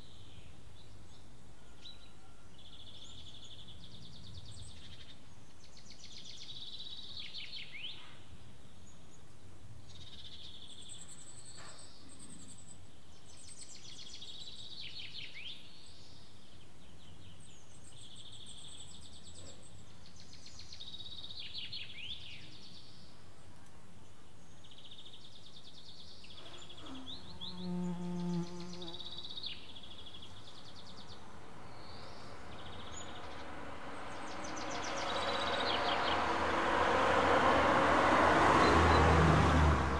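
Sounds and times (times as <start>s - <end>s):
songbird singing: 0.0s - 39.9s
approaching vehicle rumble: 29.8s - 39.9s.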